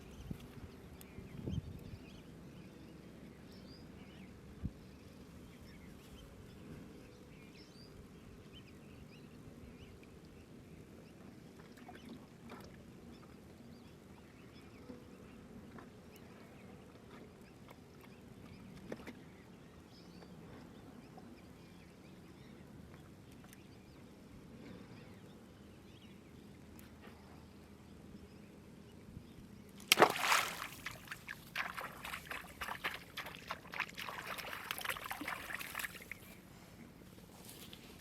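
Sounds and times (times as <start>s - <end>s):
low rumble of water: 6.5s - 38.0s.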